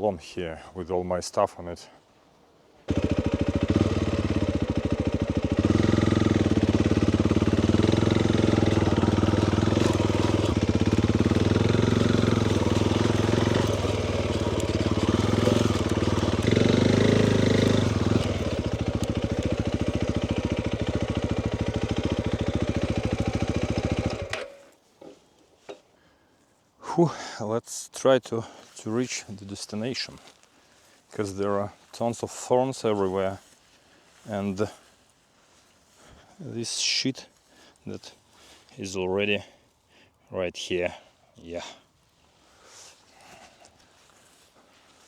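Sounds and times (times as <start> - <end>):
motorcycle engine revving: 2.9 - 24.6.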